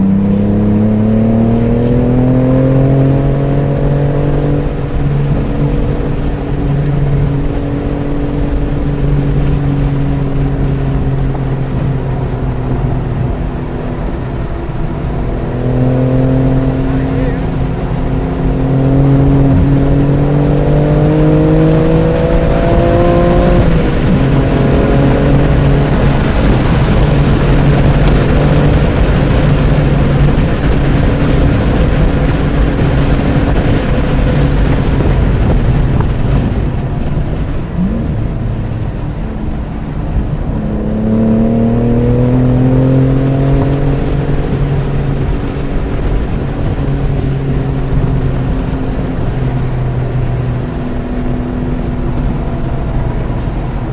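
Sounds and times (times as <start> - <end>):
car engine accelerating hard: 0.0 - 53.9
gear change: 0.0 - 53.9
wind noise: 0.0 - 53.9.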